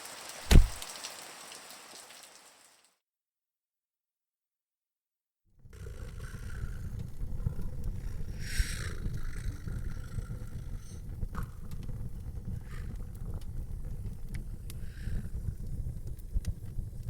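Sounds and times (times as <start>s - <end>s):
fire pops and crackles: 0.2s - 1.2s, 6.6s - 17.0s
fire rumbling: 0.4s - 0.9s, 5.7s - 17.0s.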